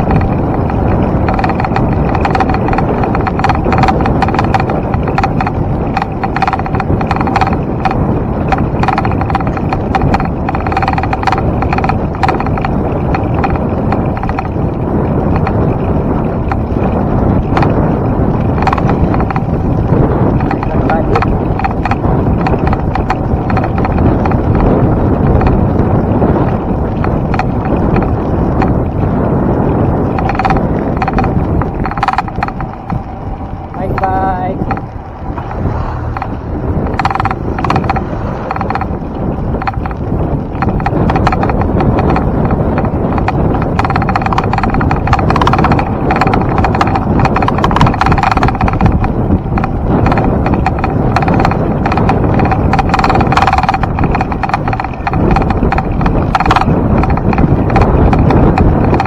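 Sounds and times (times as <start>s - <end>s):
bicycle clicks and rattles: 0.0s - 59.0s
wind buffeting microphone: 0.0s - 59.0s.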